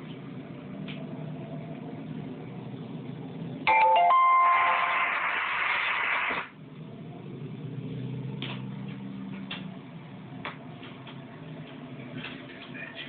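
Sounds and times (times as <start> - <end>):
radio static hiss: 4.8 - 6.5.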